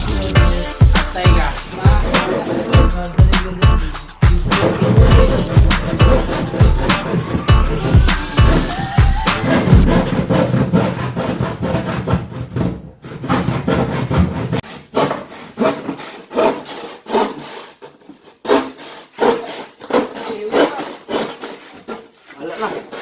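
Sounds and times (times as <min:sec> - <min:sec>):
handsaw cutting wood: 0:00.0 - 0:23.0.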